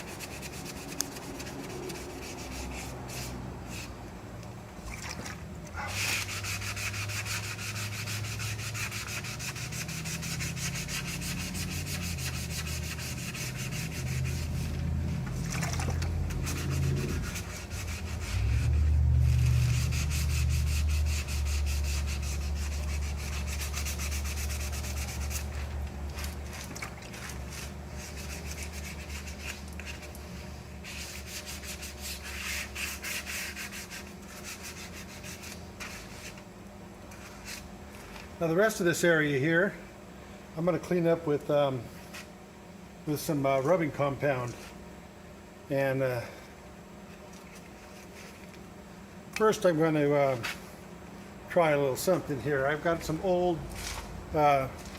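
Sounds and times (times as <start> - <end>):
sandpaper rubbing strokes: 0.0 - 4.0, 5.8 - 15.4, 16.2 - 36.4, 37.1 - 37.7.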